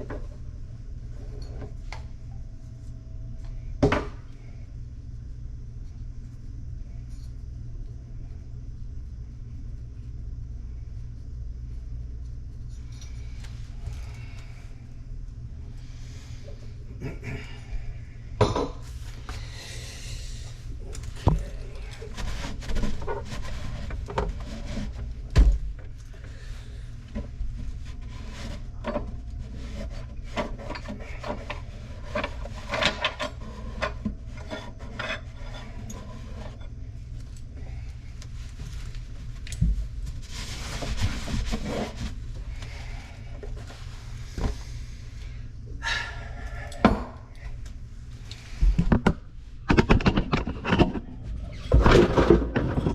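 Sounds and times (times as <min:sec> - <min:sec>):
steady low hum: 0:00.0 - 0:52.9
tools scraping and rubbing: 0:27.7 - 0:36.8, 0:49.7 - 0:52.9
sharp knocks and clatters: 0:48.7 - 0:51.1.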